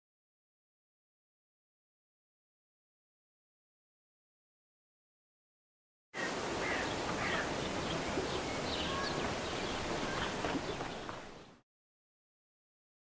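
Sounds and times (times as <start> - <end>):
birds chirping: 6.2 - 11.6.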